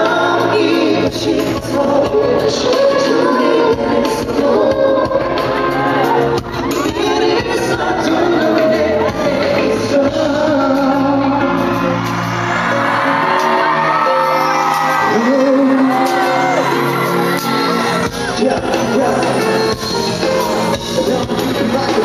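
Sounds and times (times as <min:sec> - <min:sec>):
live pop band: 0:00.0 - 0:22.0
person singing: 0:00.0 - 0:22.0
audience whooping and shouting: 0:11.5 - 0:20.8.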